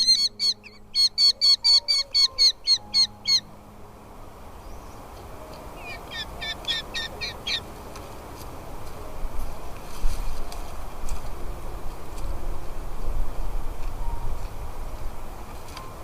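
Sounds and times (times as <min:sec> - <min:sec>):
nestling birds begging calls: 0:00.0 - 0:03.5, 0:04.6 - 0:07.7
low background hiss: 0:00.0 - 0:16.0.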